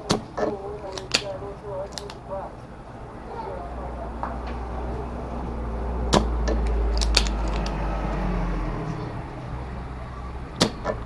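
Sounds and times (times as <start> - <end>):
sharp clicks and taps: 0.0 - 2.2, 6.1 - 7.8.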